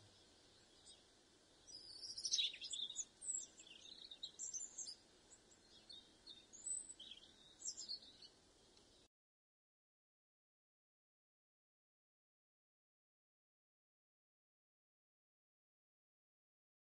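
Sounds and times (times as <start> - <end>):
faint background hiss: 0.0 - 9.1
robin singing: 0.0 - 9.1.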